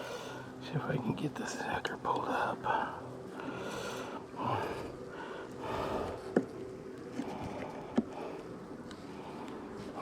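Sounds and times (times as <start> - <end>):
person breathing: 2.8 - 6.4.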